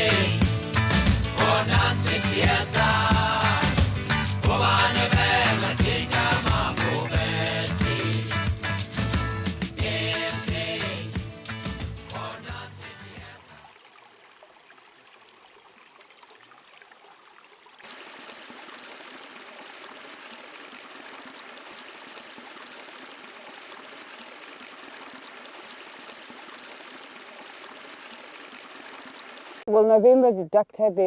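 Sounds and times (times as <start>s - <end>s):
river flowing over stones: 13.4s - 29.6s.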